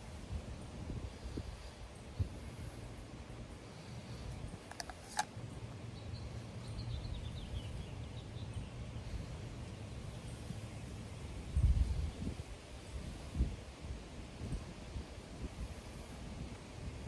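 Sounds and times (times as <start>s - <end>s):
wind rumbling on microphone: 10.3s - 17.0s.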